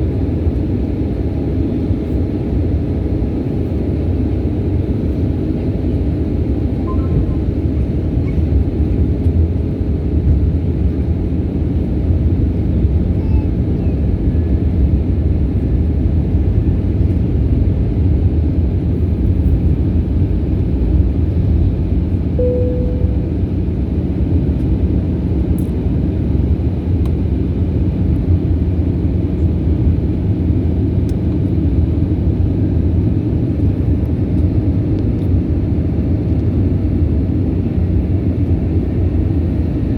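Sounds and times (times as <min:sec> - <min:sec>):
airliner engines rumbling: 0:00.0 - 0:39.9
faint tone: 0:06.8 - 0:07.6, 0:22.4 - 0:23.7.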